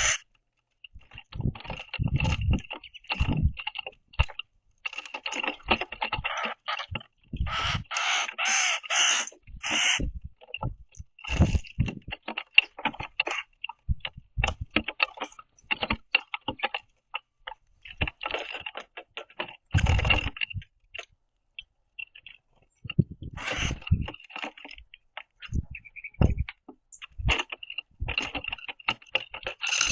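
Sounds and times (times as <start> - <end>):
birds pecking seeds on wood: 0.0 - 29.9.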